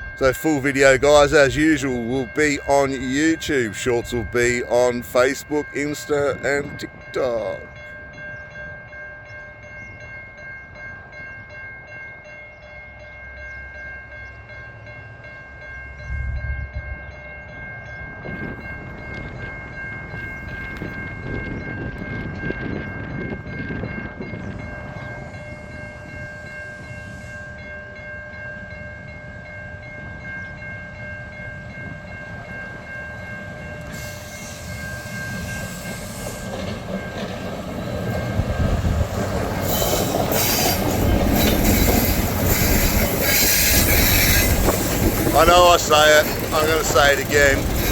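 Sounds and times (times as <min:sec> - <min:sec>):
locomotive engine rumble: 0:00.0 - 0:07.8, 0:31.7 - 0:47.9
wagon noise: 0:36.3 - 0:47.9.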